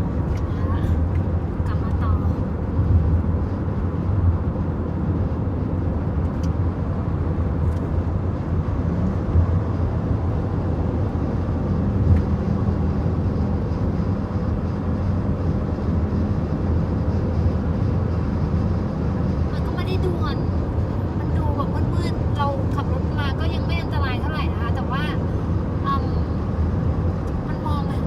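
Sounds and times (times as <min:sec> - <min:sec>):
car road and engine rumble: 0:00.0 - 0:28.0.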